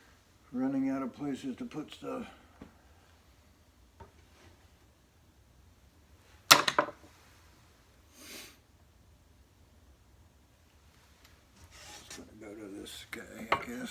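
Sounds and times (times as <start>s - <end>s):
hard objects knocking: 6.5s - 7.1s.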